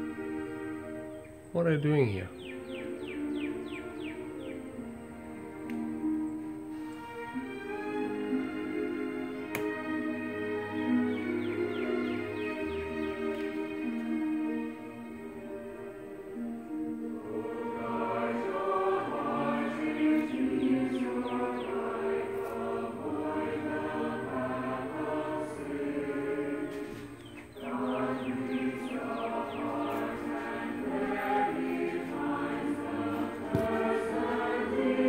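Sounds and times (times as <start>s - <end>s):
choir singing held chords: 0.0s - 35.0s.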